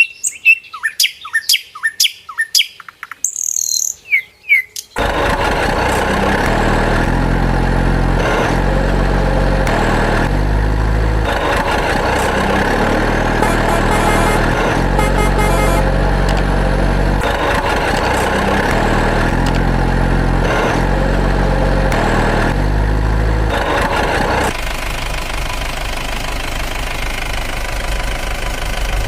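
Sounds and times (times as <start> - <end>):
bird chirping: 0.0 - 5.0
loud truck engine: 5.0 - 29.0.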